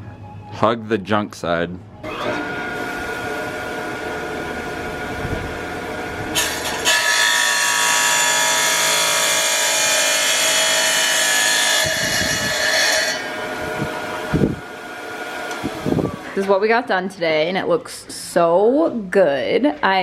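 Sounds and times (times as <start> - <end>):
saw grinding through tile: 6.3 - 13.5.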